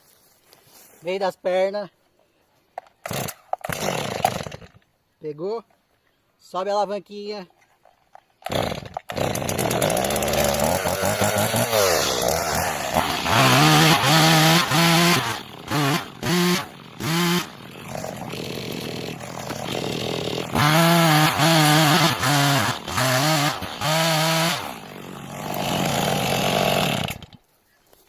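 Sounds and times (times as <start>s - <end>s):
chainsaw revving: 3.0s - 4.8s, 8.4s - 27.4s.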